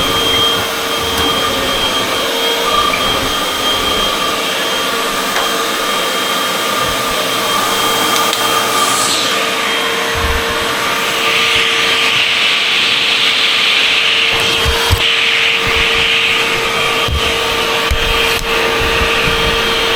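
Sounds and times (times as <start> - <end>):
vacuum cleaner running: 0.0 - 19.9
brief falling whistle: 7.3 - 12.0.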